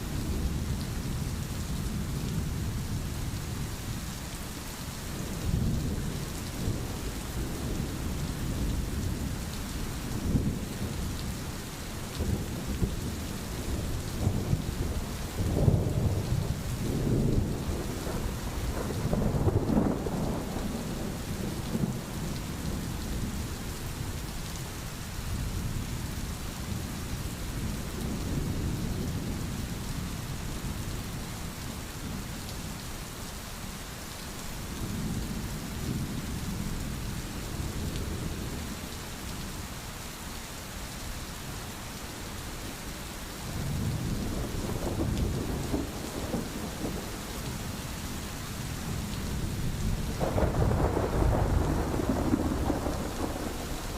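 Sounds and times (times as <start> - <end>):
steady rain hiss: 0.0 - 53.9
thunder rolling: 50.1 - 53.9.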